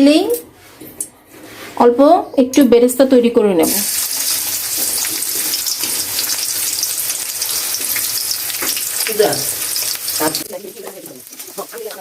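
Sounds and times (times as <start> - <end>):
onions sizzling in hot oil: 3.6 - 12.0.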